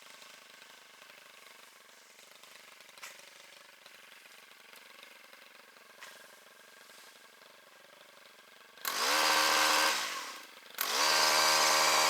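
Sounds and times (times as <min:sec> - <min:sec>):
faint engine idling: 0:00.0 - 0:09.0.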